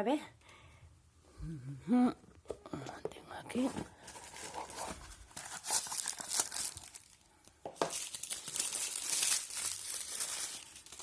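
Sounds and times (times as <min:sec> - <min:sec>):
packaging crinkling and tearing: 0:04.1 - 0:11.0.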